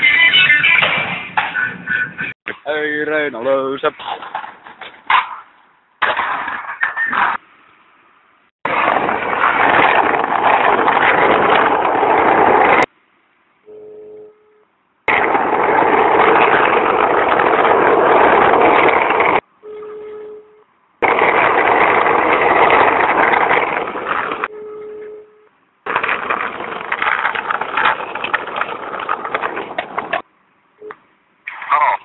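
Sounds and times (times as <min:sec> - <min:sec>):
loud rushing noise: 0:08.6 - 0:12.9, 0:15.1 - 0:19.4.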